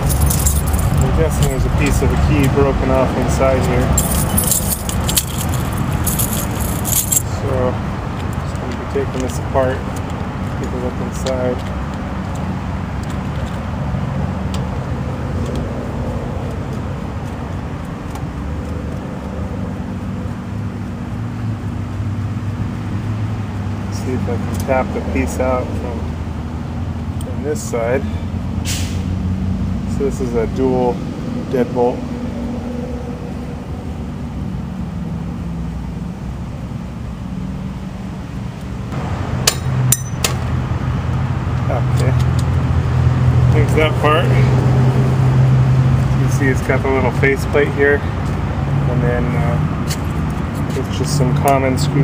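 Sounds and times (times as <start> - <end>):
low mechanical hum and rumble: 0.0 - 28.7.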